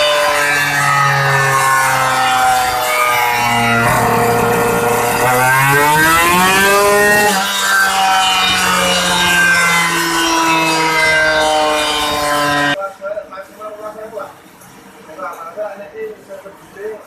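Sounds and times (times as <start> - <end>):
engine revving: 0.0 - 12.8.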